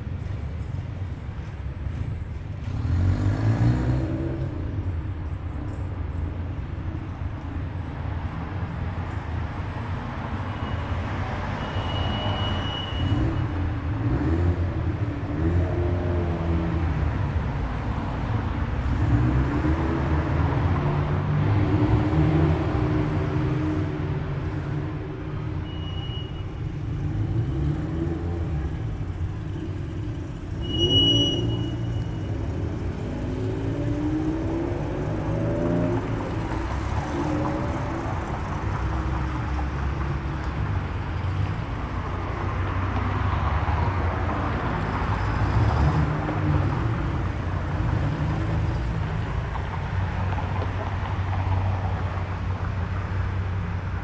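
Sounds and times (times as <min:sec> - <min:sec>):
car engines passing: 0:01.0 - 0:06.2, 0:07.2 - 0:25.8, 0:26.4 - 0:54.0
short high beep: 0:25.6 - 0:26.4.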